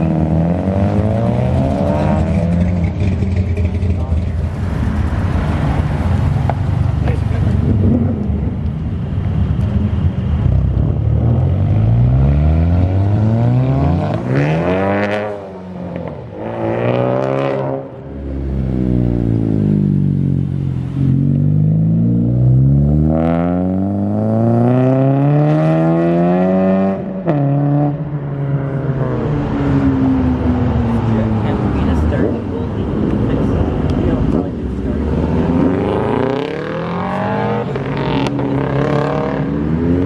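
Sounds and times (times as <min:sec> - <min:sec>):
car engine revving hard: 0:34.2 - 0:40.0.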